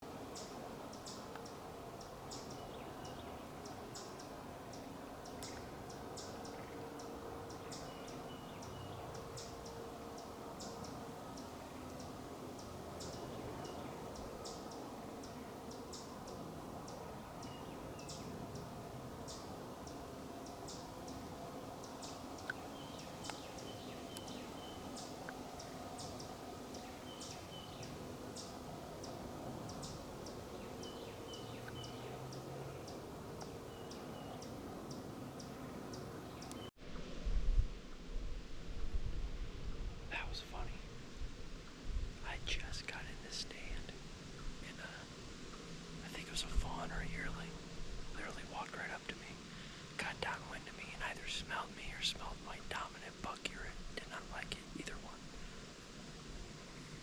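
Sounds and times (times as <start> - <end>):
faint background hiss: 0.0 - 57.0
small birds chirping: 0.3 - 36.7
thin whistled bird notes: 21.9 - 28.5.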